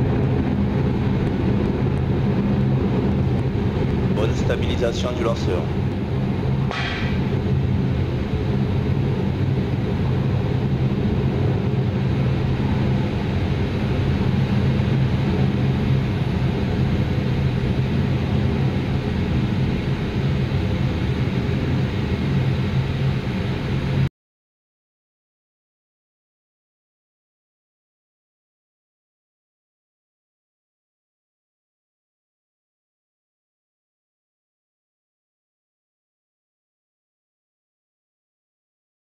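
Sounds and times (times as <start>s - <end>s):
rocket engines roaring: 0.0s - 20.8s.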